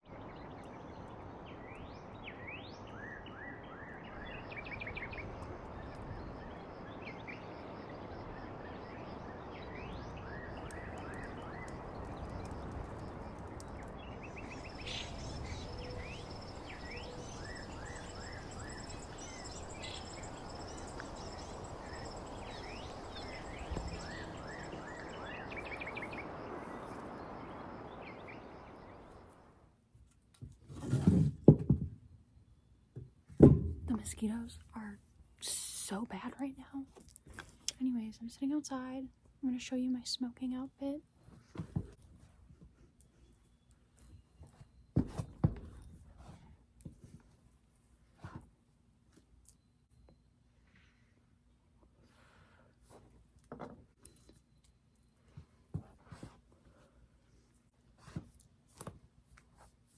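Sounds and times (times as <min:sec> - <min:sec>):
birds chirping and trilling: 0:00.1 - 0:29.5
outdoor background hiss: 0:00.1 - 0:30.3, 0:30.9 - 0:42.5.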